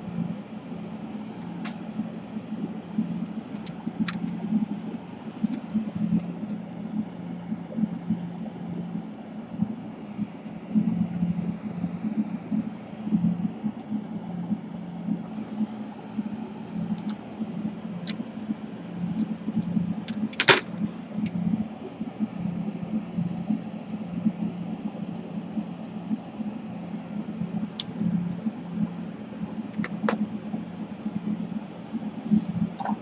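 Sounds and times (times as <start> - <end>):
fan hum: 0.0 - 33.0
small clicks: 5.3 - 7.0, 16.9 - 17.2.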